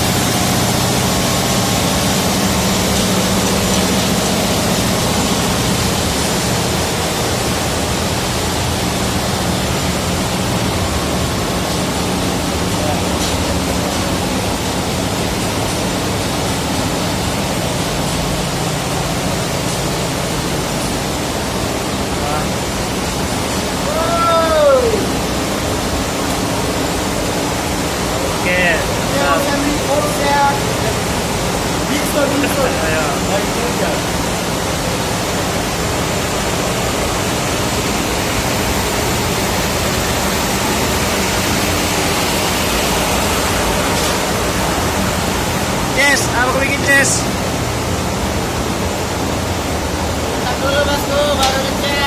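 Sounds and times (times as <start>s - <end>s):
engine room machinery roar: 0.0s - 52.0s.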